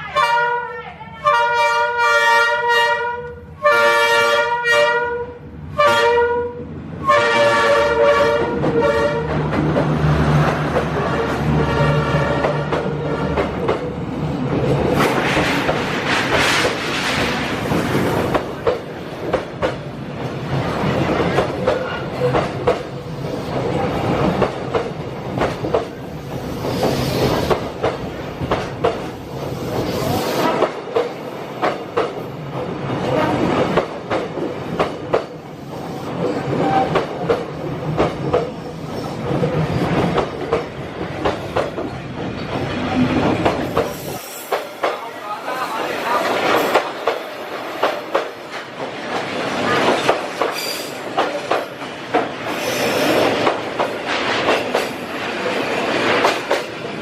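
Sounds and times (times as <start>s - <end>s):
train rumble: 0.1s - 57.0s
wheels clacking over rail joints: 14.5s - 19.9s.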